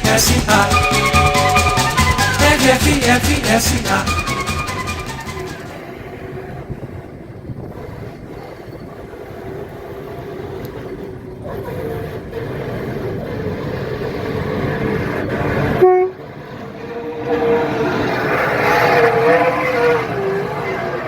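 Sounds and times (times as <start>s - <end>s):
diesel locomotive engine running: 0.0s - 21.0s
locomotive horn toot: 0.4s - 2.8s, 4.0s - 5.7s, 15.5s - 16.6s.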